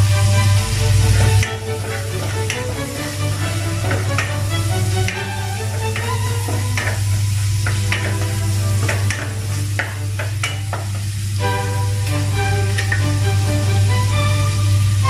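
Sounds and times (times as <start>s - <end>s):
onions sizzling: 0.0s - 15.0s
spatula scraping metal pot: 1.1s - 10.9s, 12.6s - 13.1s.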